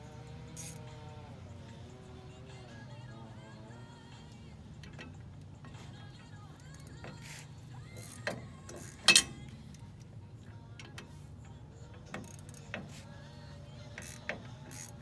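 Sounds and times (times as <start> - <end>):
ratchet wrench clicking: 0.5 - 0.9, 4.8 - 10.1, 11.8 - 15.0
sharp metallic clink: 8.8 - 9.5.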